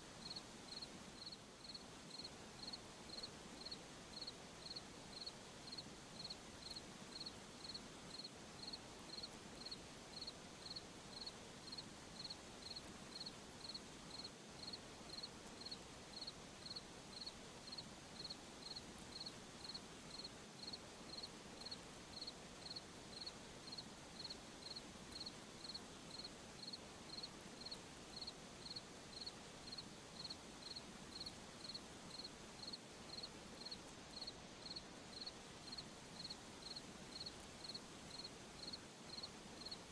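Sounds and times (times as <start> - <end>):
soft steady background hiss: 0.0 - 39.9
cricket chirping: 0.2 - 39.8.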